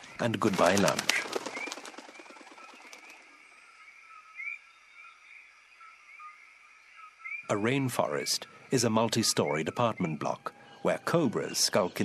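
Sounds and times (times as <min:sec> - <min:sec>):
bird wingbeats: 0:00.0 - 0:03.4
birds chirping: 0:00.0 - 0:12.0.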